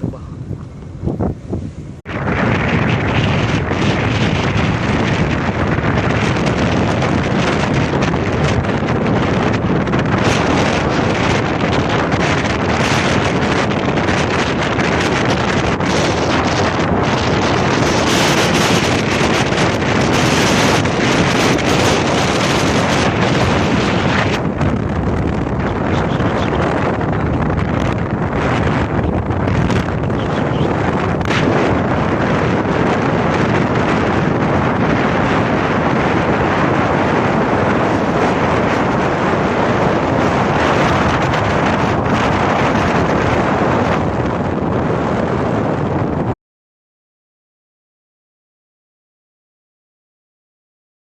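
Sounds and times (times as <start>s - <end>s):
strong wind on microphone: 0.0s - 46.4s.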